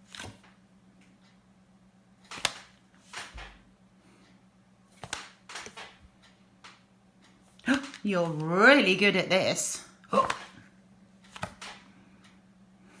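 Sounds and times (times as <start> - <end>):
faint steady hum: 0.0 - 13.0
paper flashcards flipping: 0.1 - 0.5, 5.0 - 6.0, 11.3 - 11.8.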